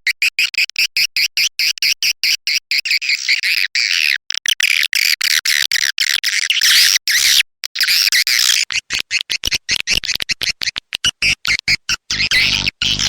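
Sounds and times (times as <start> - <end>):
recorded swiftlet chirping: 7.8 - 13.0.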